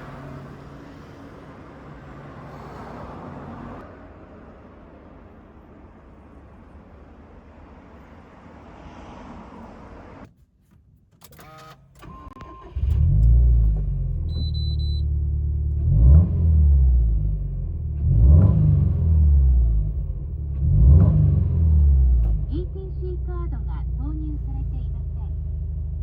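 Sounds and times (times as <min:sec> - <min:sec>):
car engine starting and idling: 0:00.0 - 0:26.0
short beep: 0:14.3 - 0:15.1.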